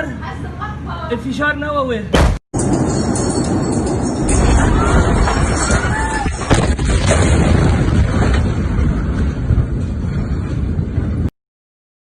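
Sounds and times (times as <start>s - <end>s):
explosion deep rumble: 4.1s - 11.3s
sharp cracks of explosion: 4.3s - 11.3s.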